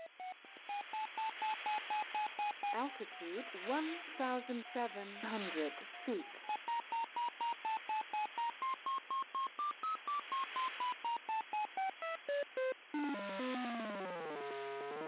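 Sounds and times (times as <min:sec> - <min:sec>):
short electronic beeps: 0:00.0 - 0:14.2
radio hiss: 0:00.6 - 0:08.4.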